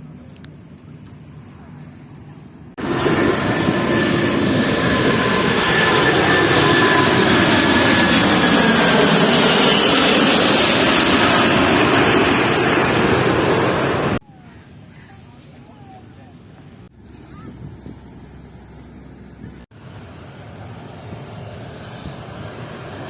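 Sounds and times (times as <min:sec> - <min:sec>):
jet airliner passing overhead: 0:02.7 - 0:14.2, 0:19.8 - 0:23.0.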